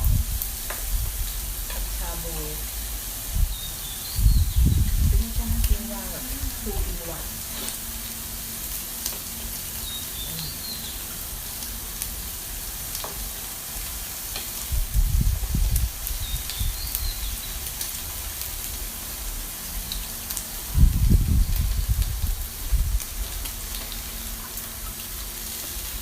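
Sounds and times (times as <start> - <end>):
low rumbles: 0.0 - 8.3, 14.7 - 16.8, 20.7 - 23.5
pork sizzling on a grill: 0.0 - 26.0.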